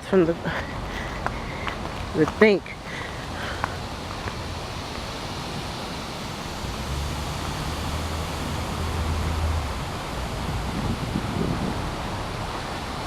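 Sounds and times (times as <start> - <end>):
outdoor rushing noise: 0.6 - 13.0.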